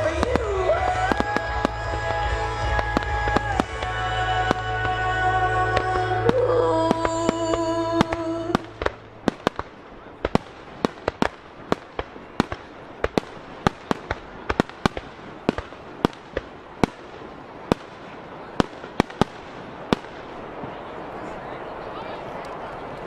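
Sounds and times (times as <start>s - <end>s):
music playing: 0.0s - 9.3s
fireworks bursting: 0.0s - 23.0s.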